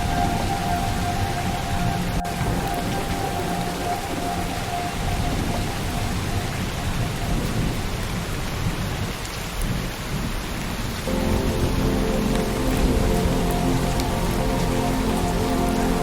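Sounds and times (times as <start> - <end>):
steady rain falling: 0.0 - 16.0
soft held music tones: 11.1 - 16.0.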